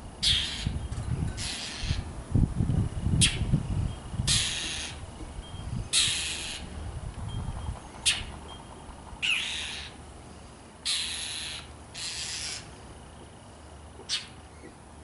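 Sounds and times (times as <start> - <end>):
bird harsh rasping scolding calls: 0.2 - 0.8, 1.4 - 2.1, 3.2 - 3.5, 4.2 - 5.1, 5.9 - 6.8, 7.8 - 12.8, 14.1 - 14.7.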